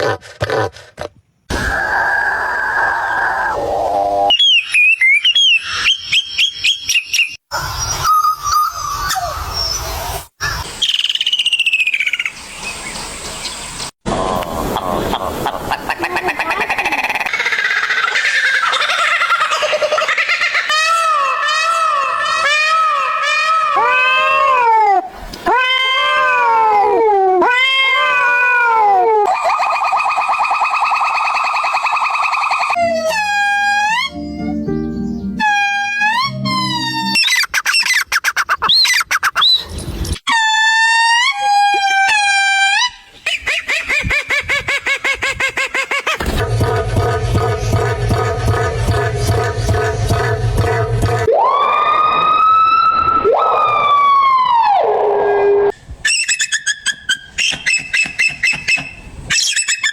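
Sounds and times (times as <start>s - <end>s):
pitch-sliding whistled bird notes: 1.5s - 12.8s, 56.0s - 59.9s.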